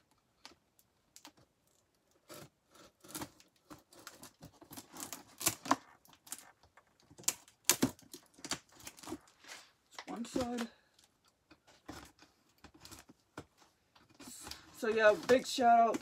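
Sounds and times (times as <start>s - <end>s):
packing tape tearing: 2.2s - 6.5s, 7.1s - 9.5s
cardboard scraping and rustling: 11.6s - 16.0s.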